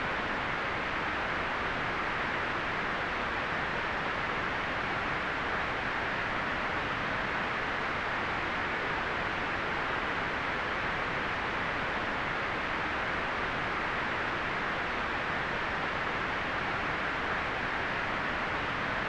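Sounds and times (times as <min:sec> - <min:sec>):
white noise hiss: 0:00.0 - 0:19.0.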